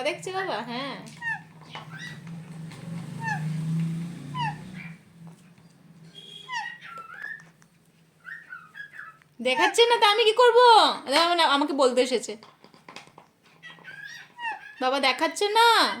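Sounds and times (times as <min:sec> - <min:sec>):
parrot whistle-like squeaks: 0:01.2 - 0:02.2, 0:04.3 - 0:05.0, 0:06.1 - 0:07.6, 0:08.2 - 0:09.2.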